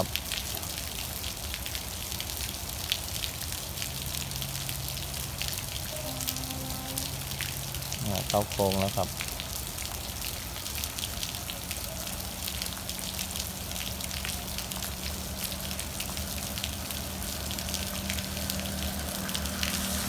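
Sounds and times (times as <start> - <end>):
rain drops ticking: 0.0 - 20.0
low steady hum: 5.8 - 8.2.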